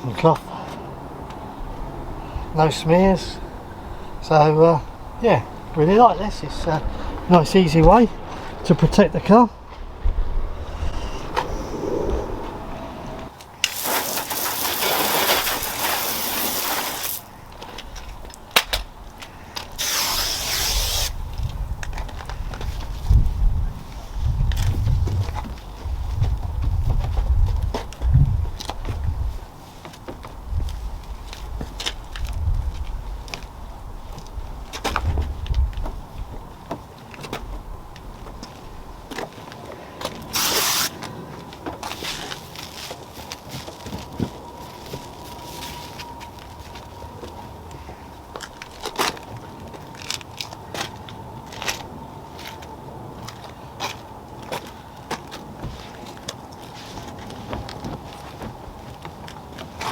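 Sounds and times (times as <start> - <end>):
spray bottle hiss: 19.8 - 21.1, 40.3 - 40.9
spray bottle hissing: 40.4 - 40.9.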